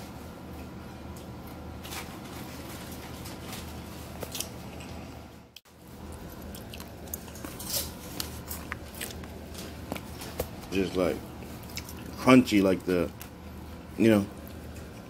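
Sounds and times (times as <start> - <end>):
steady low hum: 0.0 - 15.0
person chewing: 4.2 - 5.2, 5.9 - 15.0.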